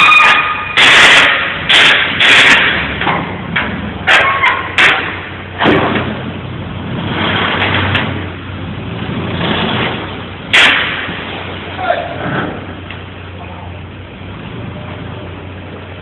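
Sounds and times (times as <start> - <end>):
loader engine running: 0.0 - 16.0
metal knocks and clanks: 0.2 - 6.3.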